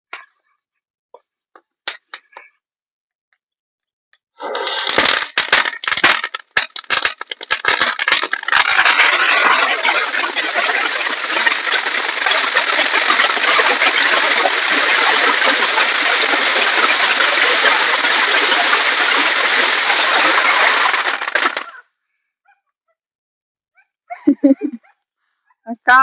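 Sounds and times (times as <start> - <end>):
firework crackling: 4.4 - 21.8.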